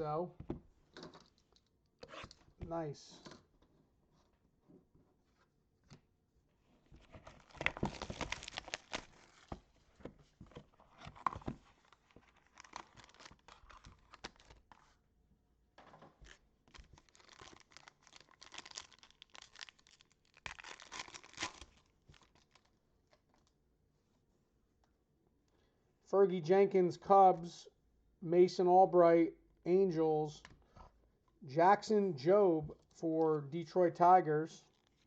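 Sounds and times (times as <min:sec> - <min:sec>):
plastic wrapping tearing and crinkling: 0:07.1 - 0:09.6, 0:10.8 - 0:14.9, 0:16.2 - 0:22.7.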